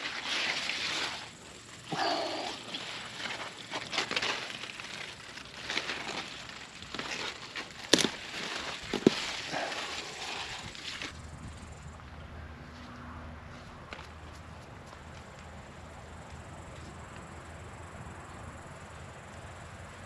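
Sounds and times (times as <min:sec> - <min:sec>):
leaves and stems rustling: 0:00.0 - 0:11.7
stems snapping: 0:01.9 - 0:11.2.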